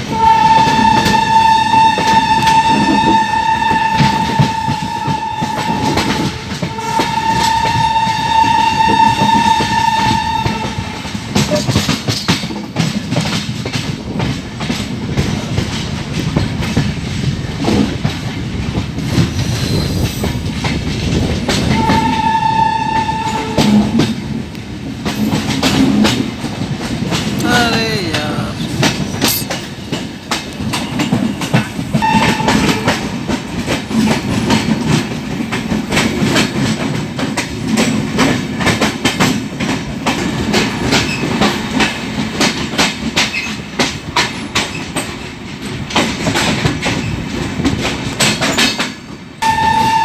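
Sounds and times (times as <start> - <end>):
train wheels clattering over rail joints: 0.0 - 27.4, 28.7 - 49.5
locomotive horn blasts: 0.1 - 11.1, 21.8 - 23.9, 32.0 - 33.0, 49.4 - 50.0.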